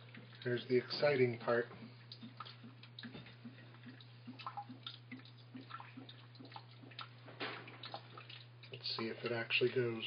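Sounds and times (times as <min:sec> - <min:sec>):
washing machine low hum: 0:00.0 - 0:10.0
water splashing into drum: 0:02.3 - 0:09.9.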